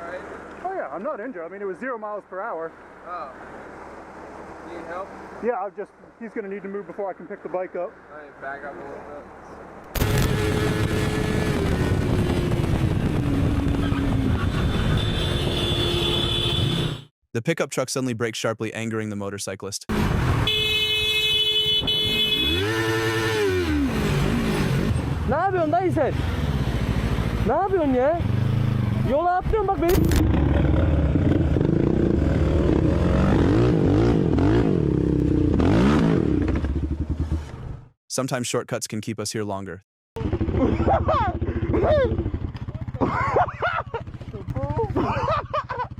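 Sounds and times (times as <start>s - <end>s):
motorcycle engine running: 10.0s - 16.9s, 40.2s - 45.9s
motorcycle engine revving: 10.0s - 17.1s, 21.8s - 38.0s, 40.2s - 45.9s
wind rush: 10.5s - 14.9s.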